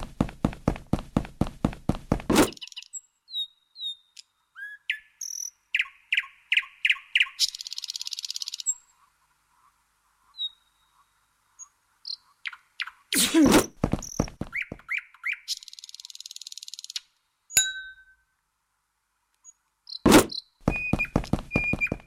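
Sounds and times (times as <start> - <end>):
bird trill: 2.5 - 8.8, 19.4 - 22.0
bird chirps and whistles: 19.9 - 22.0.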